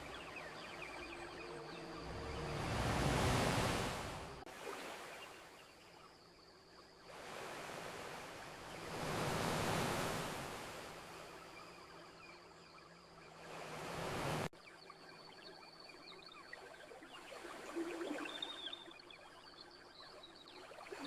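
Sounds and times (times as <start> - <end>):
ocean waves washing onto beach: 0.0 - 5.4, 7.1 - 11.6, 13.3 - 14.5.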